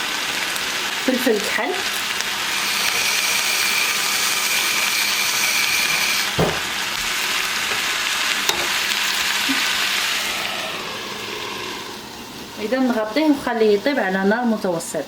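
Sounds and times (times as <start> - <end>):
food sizzling in a frying pan: 0.0 - 15.0
knock: 6.4 - 6.7.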